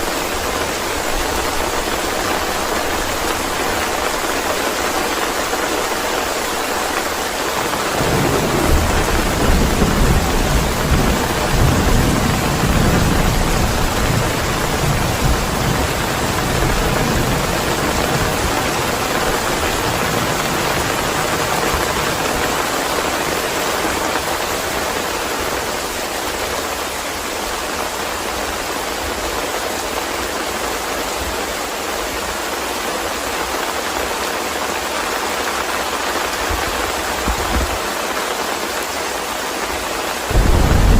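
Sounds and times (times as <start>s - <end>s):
steady rain: 0.0s - 40.9s
thunder rumble: 7.8s - 22.4s, 40.3s - 40.9s.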